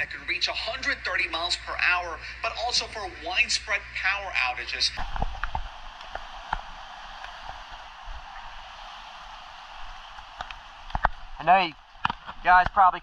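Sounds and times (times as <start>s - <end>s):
rain and wind hiss: 4.9s - 13.0s
rain ticks on camera case: 5.0s - 8.3s, 9.8s - 13.0s.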